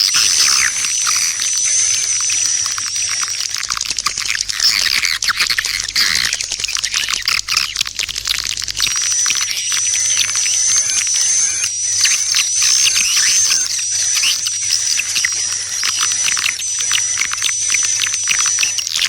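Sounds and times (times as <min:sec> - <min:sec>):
swiftlet calls chirping: 0:00.0 - 0:07.8.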